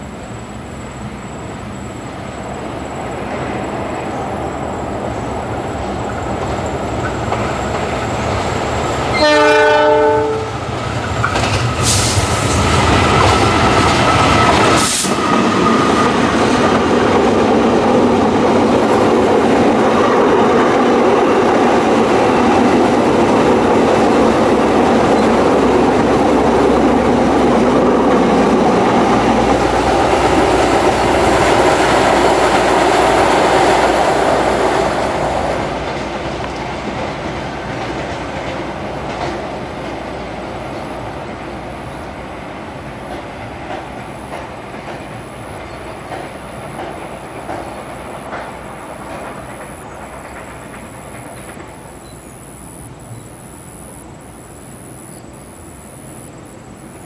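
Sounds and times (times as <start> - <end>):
train passing: 0.0 - 57.0
wheels clickety-clack: 6.0 - 8.9, 10.7 - 41.1, 43.0 - 52.1
locomotive horn blast: 9.1 - 10.6.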